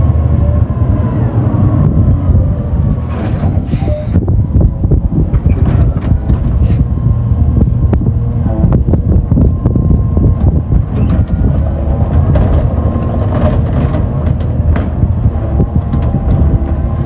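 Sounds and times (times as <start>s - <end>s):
faint high squeal: 0.0s - 1.8s, 2.5s - 4.3s, 11.0s - 14.2s
garbage truck engine rumbling: 0.0s - 17.0s
metallic clanks and knocks: 10.4s - 17.0s.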